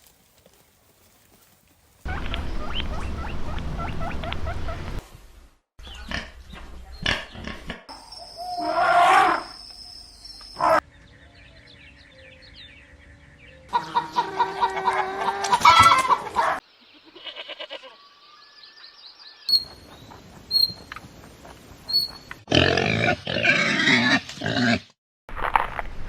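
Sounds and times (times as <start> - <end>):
birds chirping: 2.0 - 5.0, 5.8 - 22.5.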